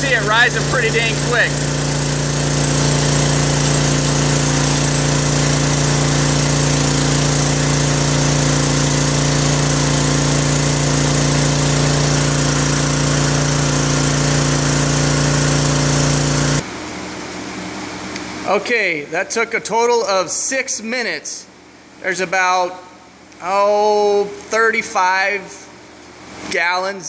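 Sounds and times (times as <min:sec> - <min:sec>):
electric pump humming: 0:00.0 - 0:18.6.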